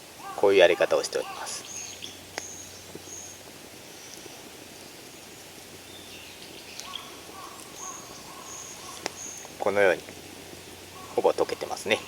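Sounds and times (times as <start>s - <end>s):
steady hiss: 0.0s - 12.0s
high chirps: 5.8s - 9.6s.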